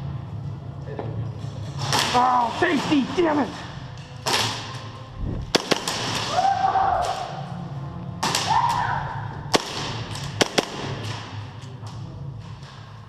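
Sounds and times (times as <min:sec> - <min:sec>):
airsoft pistol shots: 0:05.5 - 0:06.4, 0:09.5 - 0:11.4.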